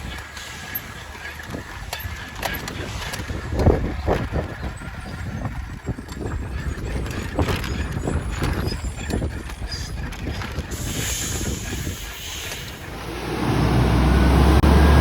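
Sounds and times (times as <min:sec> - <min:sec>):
truck engine rumble: 0:00.0 - 0:15.0
hiss of air: 0:10.7 - 0:12.8.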